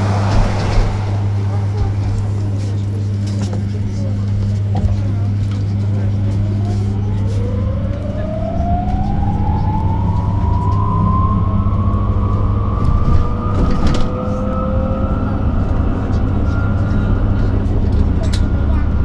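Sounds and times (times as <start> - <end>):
low hum: 0.0 - 4.6
electric bus motor whining: 0.0 - 19.0.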